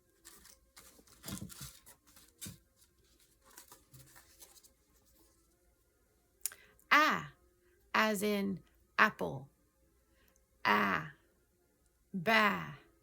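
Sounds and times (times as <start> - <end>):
faint rustling: 0.0 - 5.7
soft handling noises: 0.0 - 5.8.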